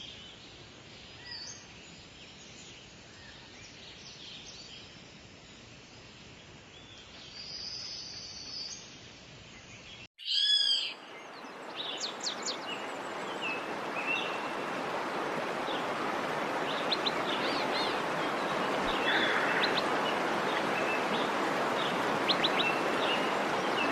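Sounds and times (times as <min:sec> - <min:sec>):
birds calling and chirping: 0:09.7 - 0:23.9.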